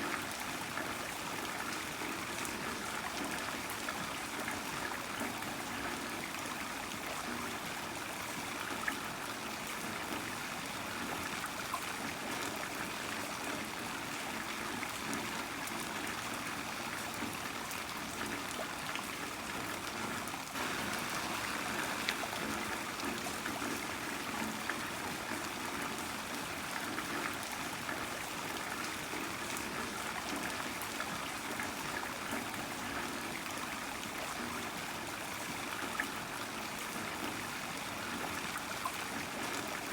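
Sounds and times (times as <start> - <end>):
water trickling: 17.0 - 39.9
heavy rain falling: 20.6 - 25.8.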